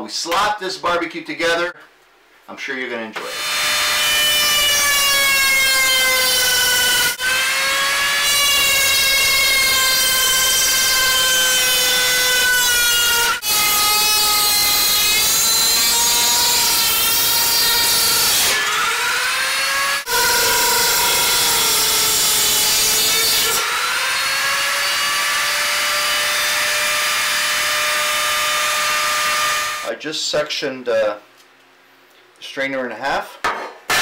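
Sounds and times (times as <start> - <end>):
power tool whining: 3.2 - 29.8.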